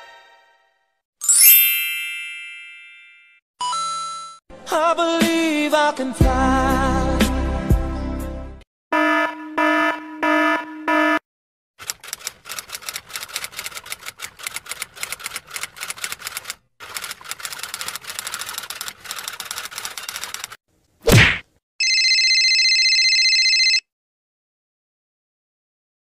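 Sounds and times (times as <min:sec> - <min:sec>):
keyboard typing clicks: 0:11.8 - 0:20.6.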